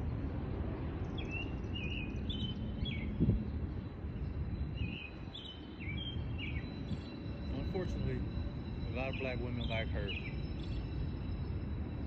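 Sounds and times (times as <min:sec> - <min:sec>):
small birds chirping: 0:08.8 - 0:11.5.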